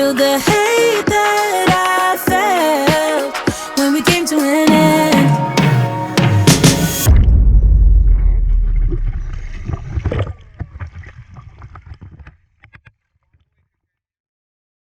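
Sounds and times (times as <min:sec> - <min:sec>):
low boat rumble: 0:07.1 - 0:11.9.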